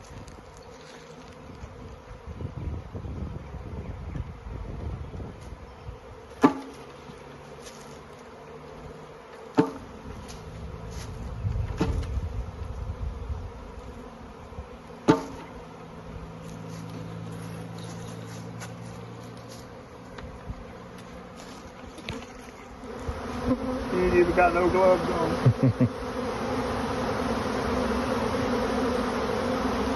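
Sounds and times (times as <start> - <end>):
bee swarm buzzing: 0.0 - 29.9
sharp knocks: 9.6 - 9.8.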